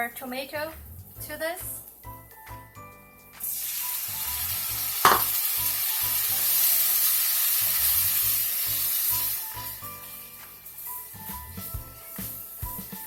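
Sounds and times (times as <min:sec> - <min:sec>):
background music: 0:00.0 - 0:13.0
tomatoes sizzling in hot oil: 0:00.0 - 0:13.0
sharp knock: 0:05.1 - 0:05.3.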